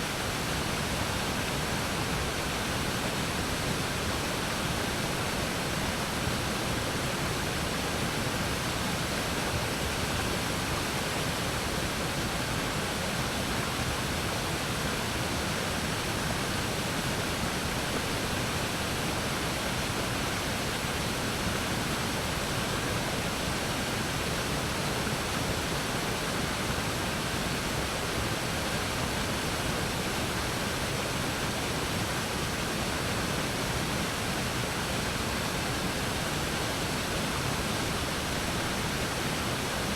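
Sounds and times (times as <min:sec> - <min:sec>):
waterfall rushing: 0:12.5 - 0:39.9.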